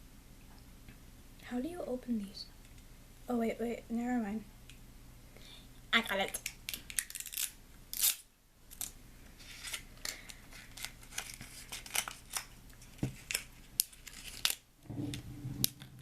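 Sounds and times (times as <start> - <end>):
plastic wrapping crinkling: 6.4 - 14.6.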